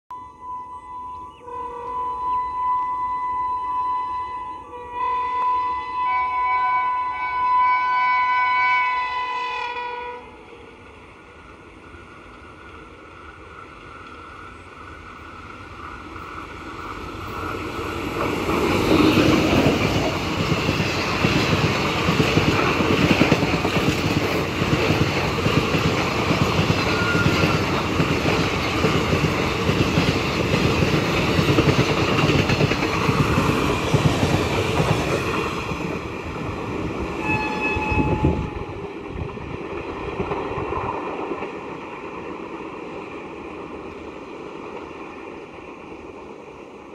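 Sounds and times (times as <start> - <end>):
train horn chord: 0.1 - 10.4, 37.2 - 38.8
train rumble: 9.1 - 46.9
wheels clattering on rails: 15.4 - 36.1.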